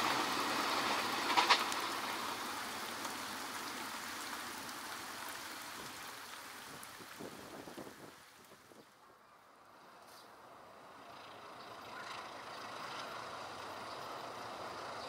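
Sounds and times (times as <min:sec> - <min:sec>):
train wheels rolling on rails: 0:00.0 - 0:04.5.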